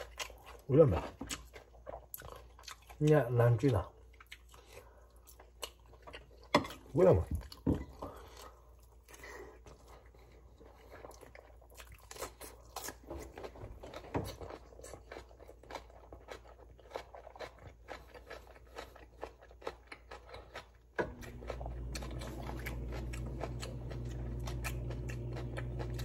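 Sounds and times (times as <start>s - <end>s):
person chewing and crunching: 0.0s - 26.0s
steady low hum: 21.0s - 26.0s.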